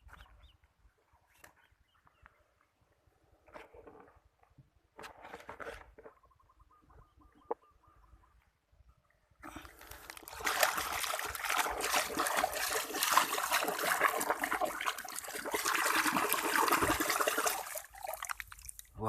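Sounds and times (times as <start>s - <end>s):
running water splashing over a toy: 10.2s - 18.9s.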